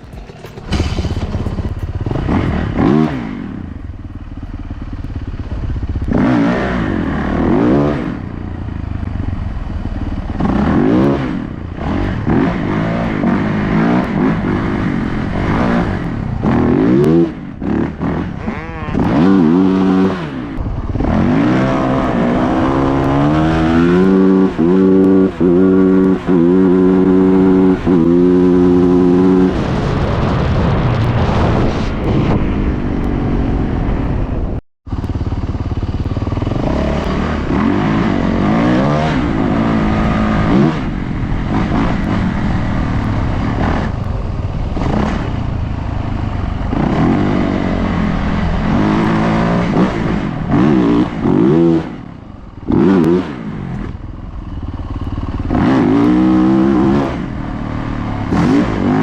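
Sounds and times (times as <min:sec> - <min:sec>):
bike rattling over rough ground: 0:00.0 - 0:06.0
dirt bike engine revving: 0:00.0 - 0:30.4, 0:34.9 - 0:59.0.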